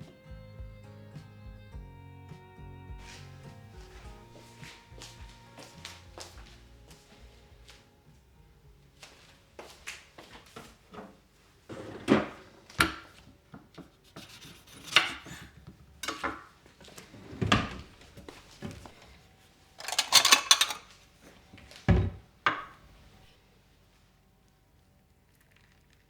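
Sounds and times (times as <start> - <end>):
kitchen items rubbing: 13.7 - 21.3.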